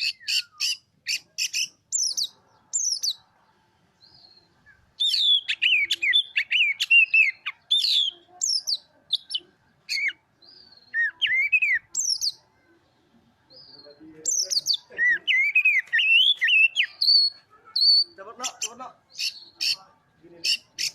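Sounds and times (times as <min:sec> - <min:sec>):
bird singing warbling whistles: 0:14.6 - 0:18.1.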